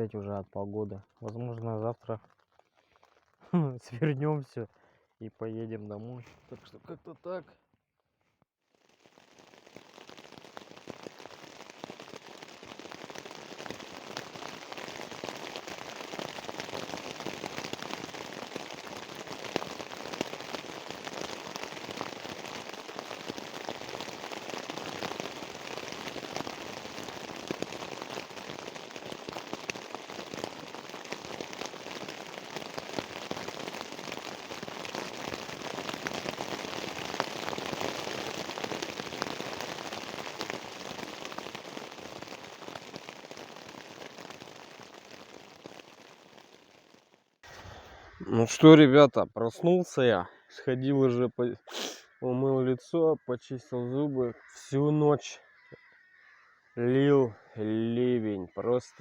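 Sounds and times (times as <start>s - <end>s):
heavy rain: 9.0s - 48.7s.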